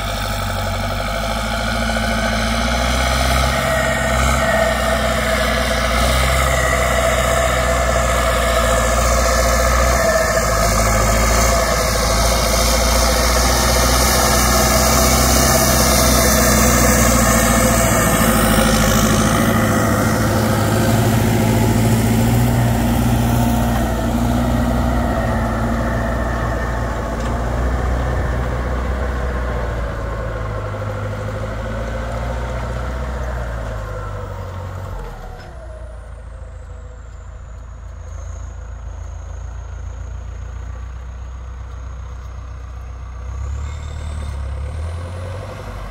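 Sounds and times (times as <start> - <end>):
tractor diesel engine running hard: 0.0 - 45.9
high turbo whistle: 1.5 - 30.2.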